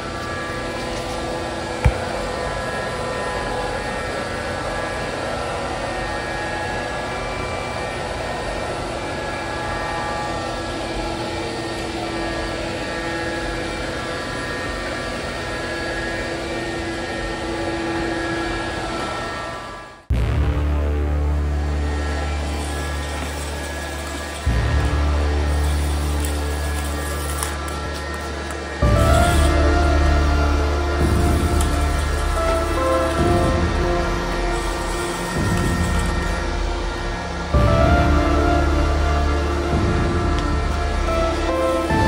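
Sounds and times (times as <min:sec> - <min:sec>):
robot vacuum whirring: 0:21.8 - 0:42.0.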